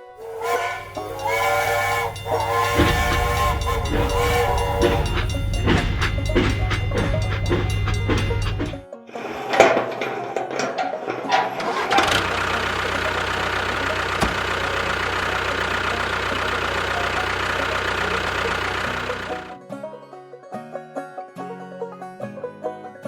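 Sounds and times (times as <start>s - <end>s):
engine starting and running: 0.0s - 19.6s.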